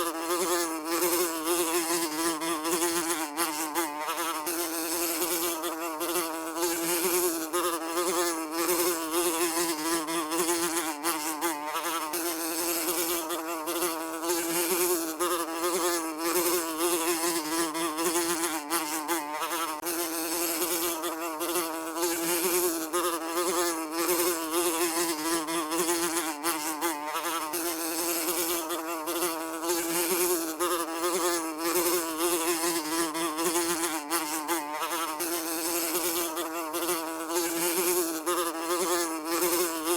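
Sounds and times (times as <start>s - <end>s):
fly buzzing: 0.0s - 39.9s.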